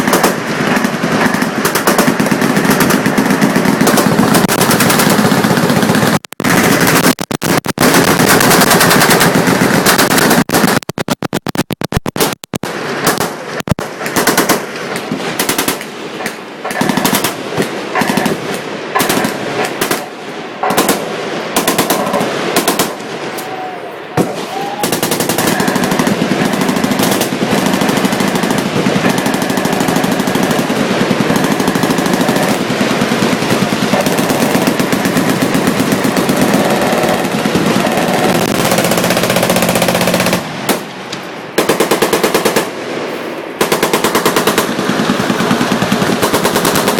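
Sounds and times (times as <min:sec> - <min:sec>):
machine guns firing: 0:00.0 - 0:23.2, 0:24.2 - 0:40.9, 0:41.5 - 0:43.0, 0:43.6 - 0:46.9.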